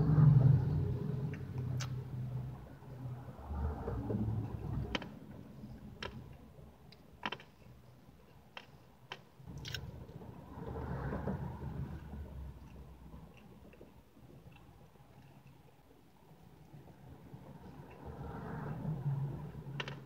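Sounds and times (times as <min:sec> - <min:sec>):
mouth clicks and smacks: 0:01.3 - 0:02.1
chewing soft cake: 0:06.0 - 0:09.9, 0:12.4 - 0:18.2.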